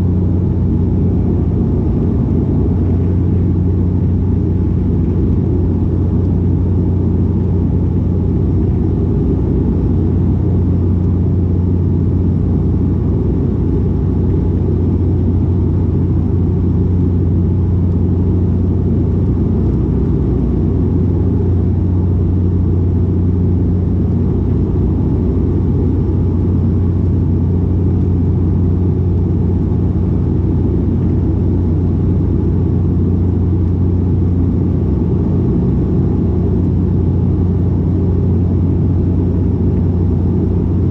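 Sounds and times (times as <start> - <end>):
turboprop cabin drone: 0.0 - 40.9.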